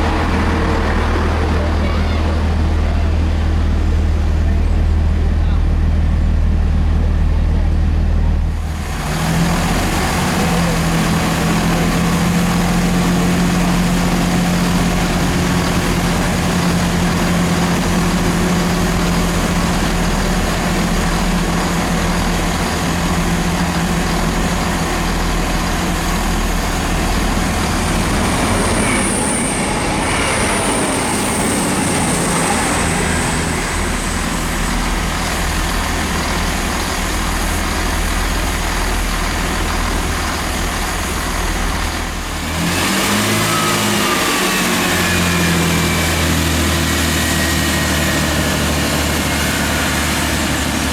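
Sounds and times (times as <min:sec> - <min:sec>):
train passing: 0:00.0 - 0:50.9
high wheel squeal: 0:27.1 - 0:36.1, 0:42.8 - 0:50.9.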